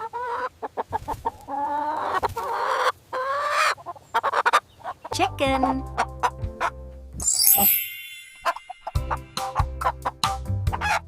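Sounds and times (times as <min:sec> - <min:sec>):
chicken clucking: 0:00.0 - 0:05.1.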